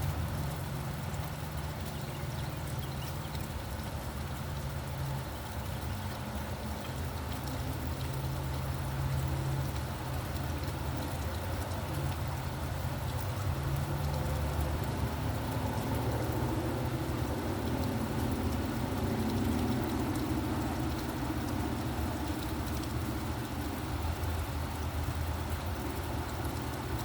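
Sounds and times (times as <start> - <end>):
low hum of traffic: 0.0 - 27.0
raindrops ticking: 0.0 - 27.0
steady rain falling: 0.0 - 27.0.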